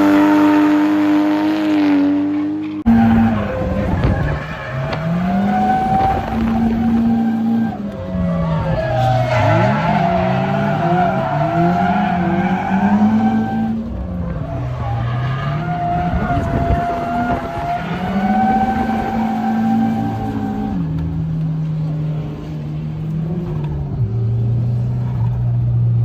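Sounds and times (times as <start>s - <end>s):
car engine revving: 0.0s - 26.0s
tyres squealing: 2.9s - 20.8s.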